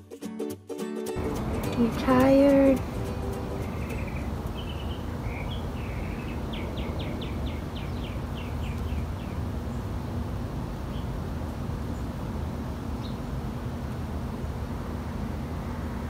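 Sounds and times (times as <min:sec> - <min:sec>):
small bird singing: 0:01.2 - 0:10.2
steady low rumble: 0:01.2 - 0:16.0.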